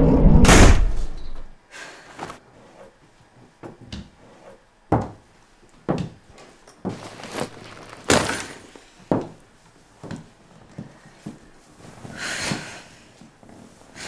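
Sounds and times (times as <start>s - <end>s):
fabric rustling: 6.8s - 9.0s.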